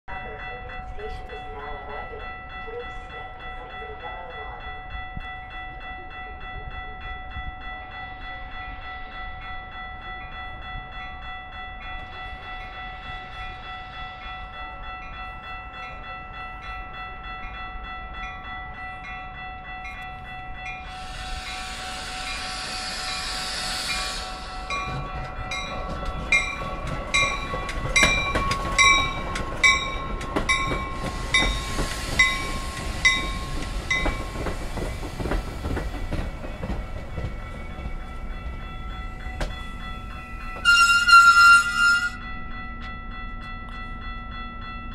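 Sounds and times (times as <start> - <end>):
train wheels clattering: 20.9 - 42.2
train horn blast: 40.6 - 42.2.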